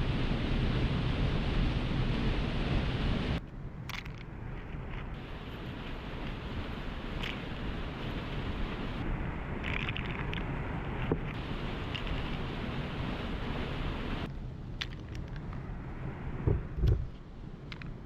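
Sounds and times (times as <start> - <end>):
waterfall rushing: 5.2 - 9.0, 11.4 - 14.3
faint clicks: 16.8 - 18.0.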